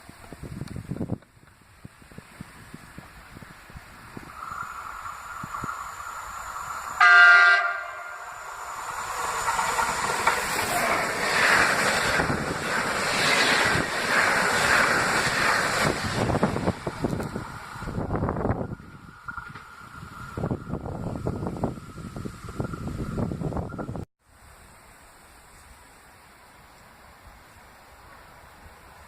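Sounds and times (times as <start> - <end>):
train wheels rumbling on rails: 0.0 - 24.0
train horn blast: 7.0 - 8.4.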